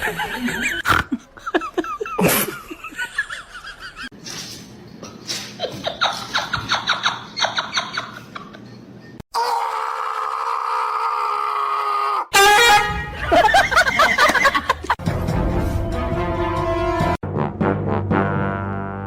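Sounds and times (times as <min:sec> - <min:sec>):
person laughing: 0:00.0 - 0:04.1, 0:13.1 - 0:15.0.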